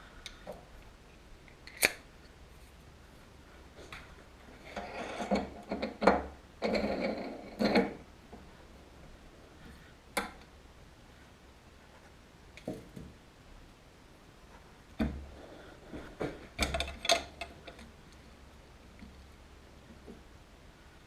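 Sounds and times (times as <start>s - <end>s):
scraping and clattering: 4.5s - 8.1s.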